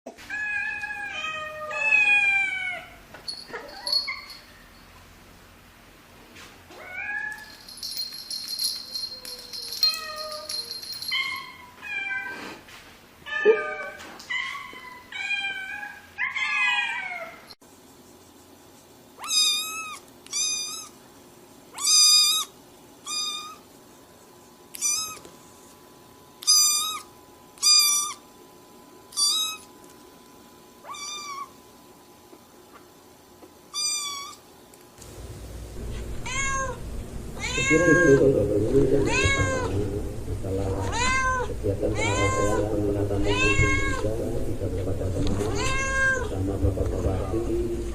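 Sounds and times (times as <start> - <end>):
cat meowing: 19.2 - 20.9, 23.1 - 23.6, 24.8 - 25.2, 30.8 - 31.5, 33.8 - 34.4, 35.9 - 36.8, 37.4 - 38.2, 39.0 - 39.8, 40.8 - 44.1, 45.4 - 46.3.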